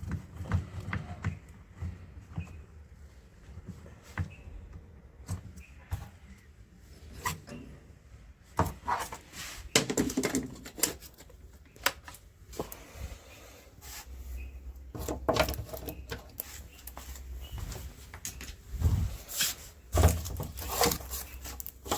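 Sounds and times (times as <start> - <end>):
handling clicks and knocks: 9.8 - 12.9, 14.8 - 18.7.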